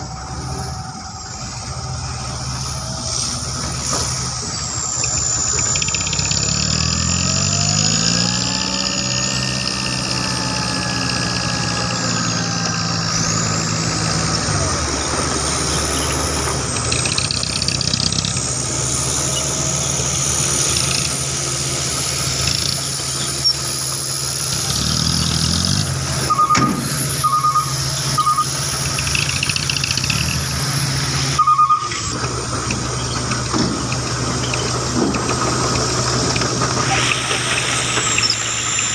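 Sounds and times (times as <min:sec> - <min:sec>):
diesel truck engine running: 0:00.0 - 0:38.9
short high beeps: 0:26.3 - 0:29.8, 0:31.4 - 0:32.1.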